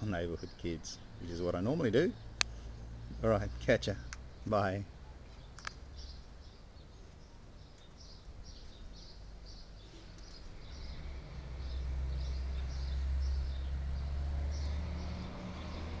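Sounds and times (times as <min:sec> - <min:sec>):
small bird chirping: 0:04.0 - 0:15.9.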